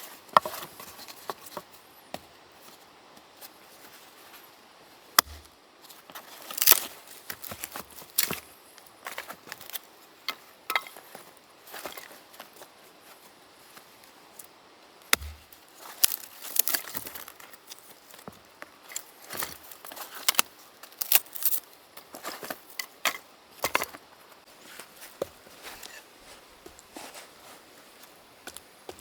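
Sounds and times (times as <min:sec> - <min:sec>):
wood cracking when split: 0:06.5 - 0:08.3, 0:15.1 - 0:17.3
heavy thump: 0:15.1 - 0:15.6.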